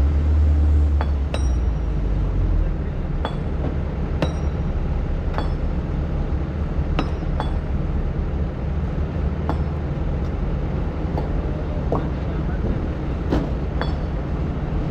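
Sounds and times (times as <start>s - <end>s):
excavator diesel engine running: 0.0s - 14.9s
sharp metallic clinks: 1.0s - 2.0s, 3.2s - 3.6s, 4.2s - 5.9s, 7.0s - 7.8s, 13.8s - 14.2s.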